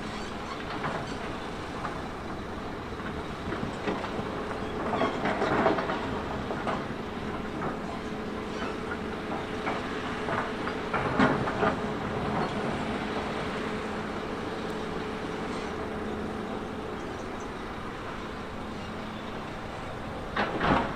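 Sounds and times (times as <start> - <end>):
earthmoving machine engine hum: 0.0 - 20.9.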